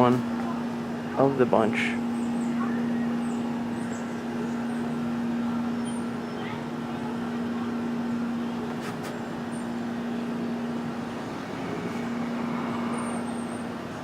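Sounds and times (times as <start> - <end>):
mechanical hum: 0.0 - 14.0
outdoor background noise: 0.0 - 14.0
faint high chirp: 5.7 - 6.6.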